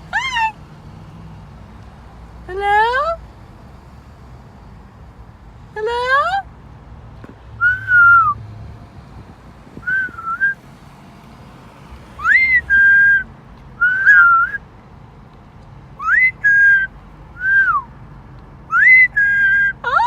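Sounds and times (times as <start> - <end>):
parrot whistling: 9.9 - 10.6, 12.2 - 13.2, 13.8 - 14.6, 16.0 - 17.8, 18.7 - 19.8.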